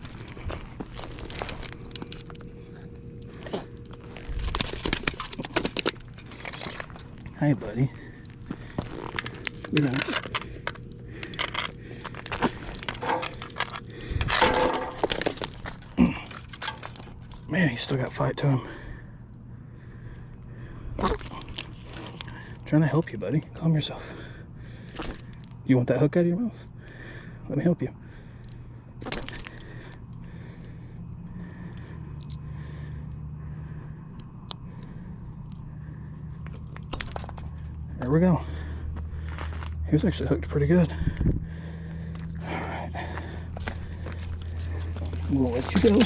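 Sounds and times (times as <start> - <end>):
fish thrashing on rocky ground: 3.3 - 7.3.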